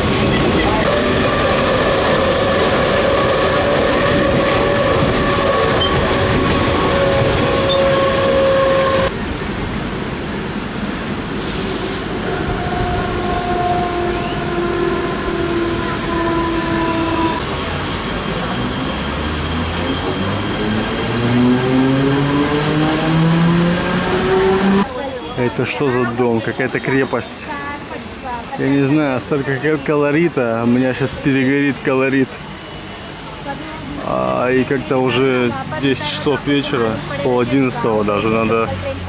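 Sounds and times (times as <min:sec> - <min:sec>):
train wheels rumbling: 0:00.0 - 0:26.2
train motor whine: 0:00.4 - 0:09.1, 0:11.4 - 0:24.9
short hiss: 0:11.4 - 0:12.1.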